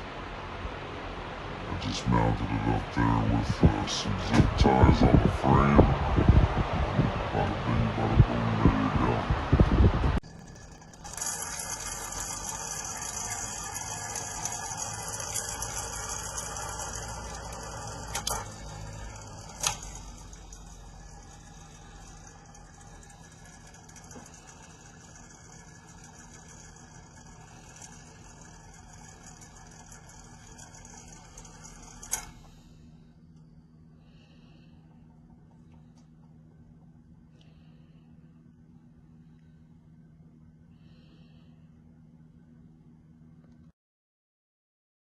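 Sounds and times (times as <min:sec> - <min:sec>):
electric fan whooshing: 0:00.0 - 0:33.3.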